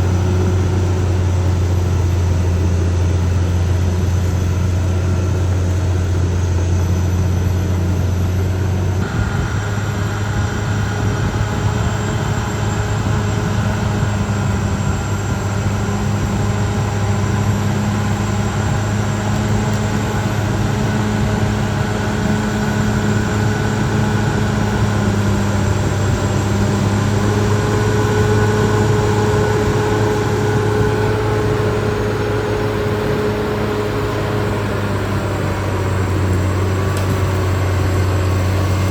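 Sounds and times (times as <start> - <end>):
higher steady tone: 0.0 - 36.6
bulldozer diesel engine running: 0.0 - 38.9.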